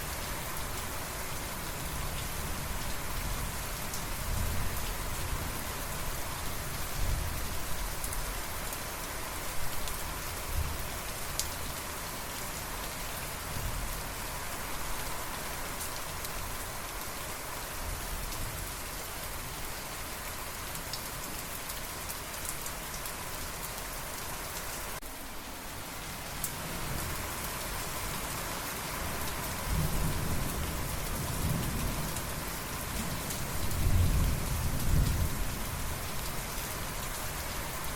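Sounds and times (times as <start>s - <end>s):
steady rain falling: 0.0s - 37.9s.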